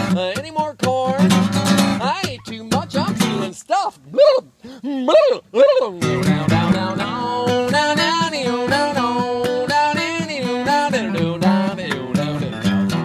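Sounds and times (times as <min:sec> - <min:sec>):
acoustic guitar: 0:00.0 - 0:13.0.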